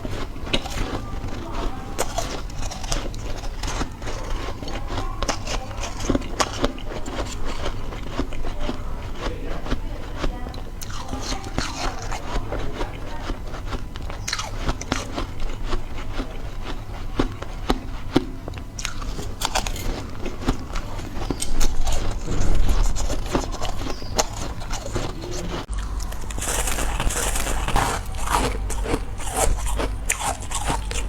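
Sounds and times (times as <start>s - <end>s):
ice being chewed: 0.0s - 31.0s.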